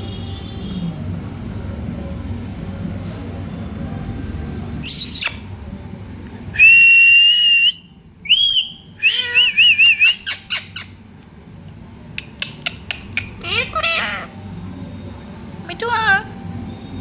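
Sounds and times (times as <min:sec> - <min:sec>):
parrot squawking and whistling: 0:04.8 - 0:05.5, 0:06.6 - 0:11.0, 0:12.2 - 0:14.4.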